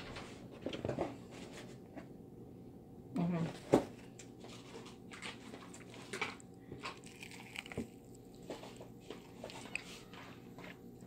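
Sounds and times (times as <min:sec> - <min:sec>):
crunching and chewing: 0:04.1 - 0:11.0.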